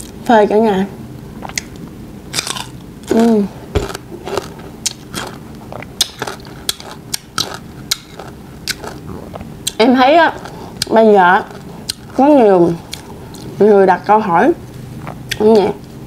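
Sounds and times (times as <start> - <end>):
crunching and chewing mango: 1.4 - 13.6.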